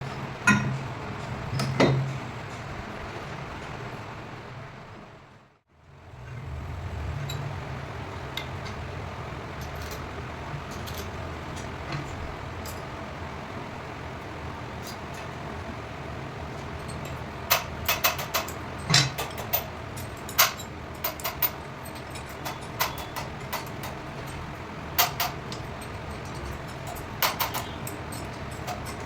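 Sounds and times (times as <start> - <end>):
sharp clicks and knocks: 16.8 - 29.0.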